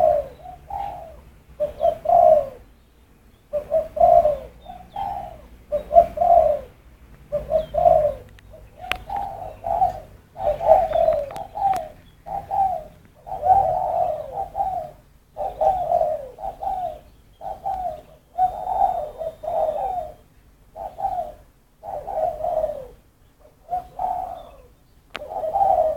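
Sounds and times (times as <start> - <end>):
dove cooing: 0.0 - 25.9.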